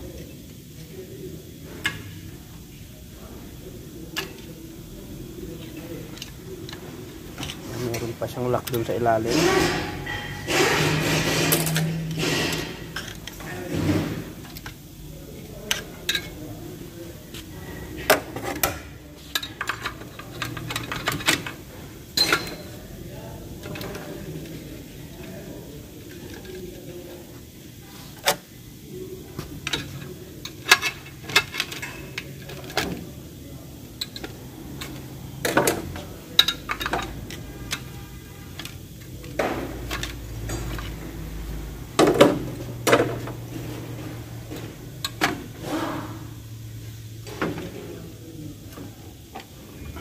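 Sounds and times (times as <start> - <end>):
metal parts and tools clinking: 7.4 - 13.6, 18.4 - 22.8, 36.4 - 41.0.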